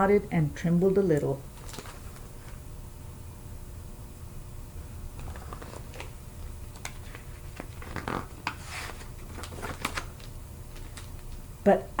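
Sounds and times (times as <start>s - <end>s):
low steady hum: 0.0s - 12.0s
paper rustling: 1.6s - 2.3s, 5.2s - 6.2s, 6.8s - 11.4s.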